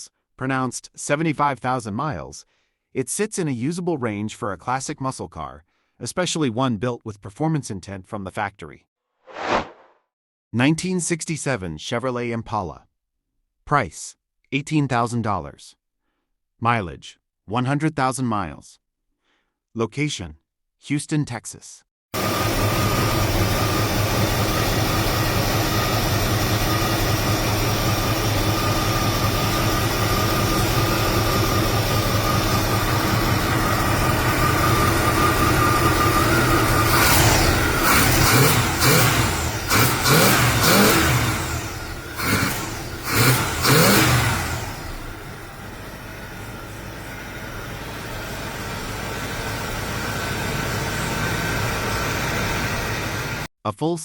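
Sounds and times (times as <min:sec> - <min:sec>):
steady high whine: 0:22.2 - 0:38.2
car engine deep rumble: 0:22.2 - 0:53.5.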